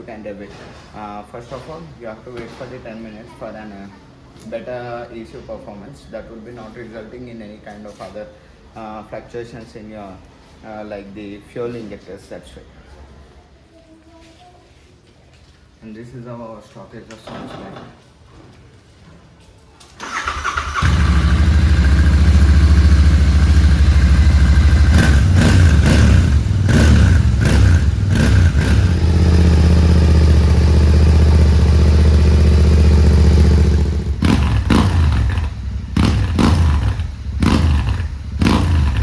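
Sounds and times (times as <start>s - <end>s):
motorcycle engine revving and idling: 20.2s - 39.0s.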